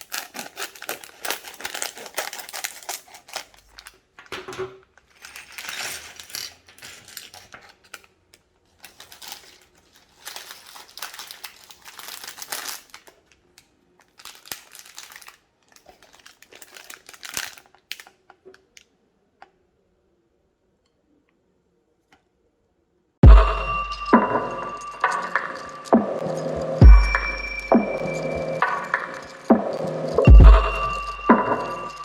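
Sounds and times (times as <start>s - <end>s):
plastic bags crinkling: 0.0s - 18.4s.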